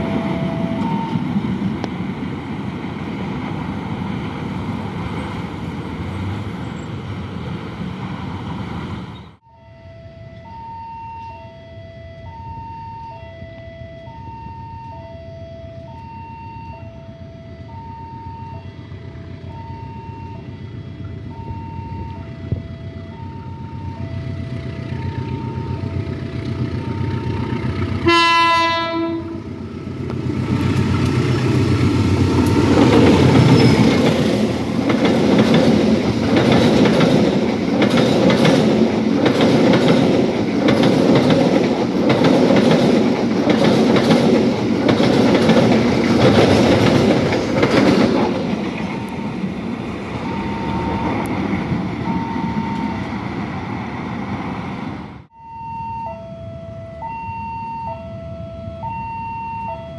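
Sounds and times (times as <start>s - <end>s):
train rumble: 0.0s - 9.4s, 12.0s - 55.3s
train horn blast: 21.5s - 29.7s
wheel clatter on rails: 30.0s - 53.1s.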